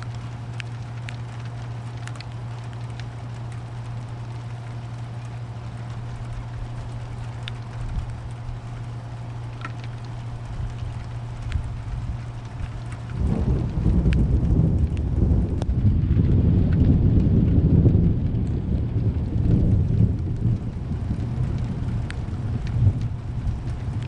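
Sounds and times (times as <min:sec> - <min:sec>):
sharp drips: 0:00.0 - 0:15.7
low hum: 0:00.0 - 0:24.0
steady rain: 0:00.0 - 0:24.0
thunder rumbling: 0:06.0 - 0:24.0.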